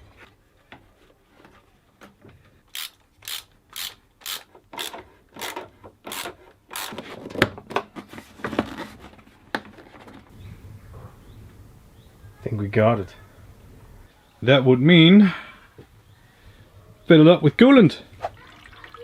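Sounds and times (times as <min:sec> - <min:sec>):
ratchet wrench strokes: 0:02.7 - 0:06.9.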